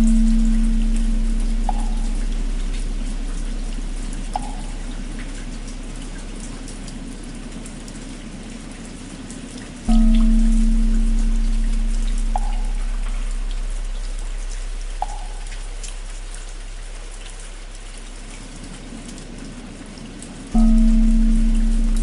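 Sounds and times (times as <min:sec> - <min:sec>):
deep bell ringing: 0:00.0 - 0:05.8, 0:09.9 - 0:16.8, 0:20.6 - 0:22.0
steady rain: 0:00.0 - 0:22.0.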